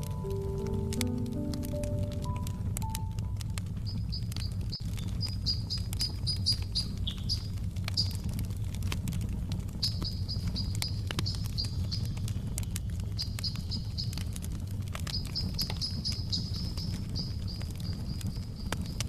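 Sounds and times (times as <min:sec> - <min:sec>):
wood fire crackling: 0:00.0 - 0:19.0
high quick chirping: 0:05.2 - 0:08.2, 0:09.8 - 0:12.2, 0:15.1 - 0:18.8.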